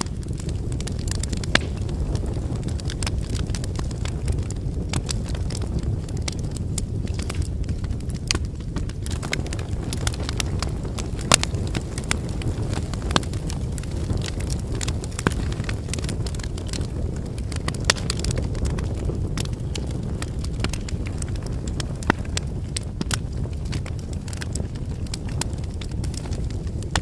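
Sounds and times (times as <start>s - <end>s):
campfire crackling: 0.0s - 27.0s.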